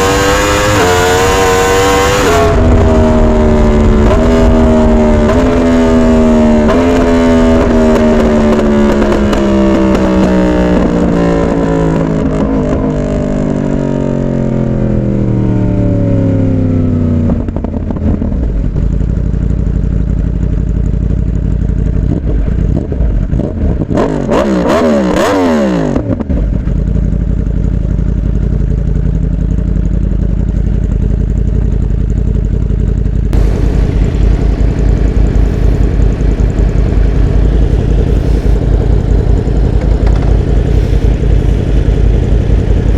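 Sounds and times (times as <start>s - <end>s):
motorcycle engine slowing: 0.0s - 24.2s, 25.7s - 42.9s
vehicle passing by: 33.4s - 41.8s.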